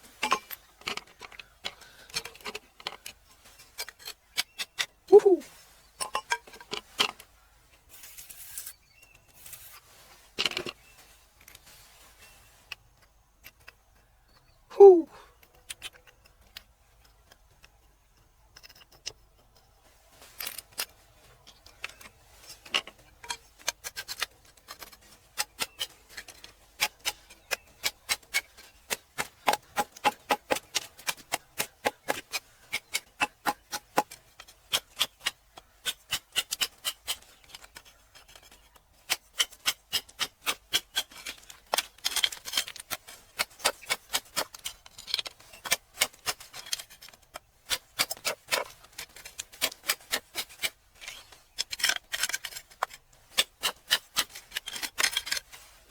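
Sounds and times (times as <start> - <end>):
hard tool tapping stone: 26.8 - 35.1.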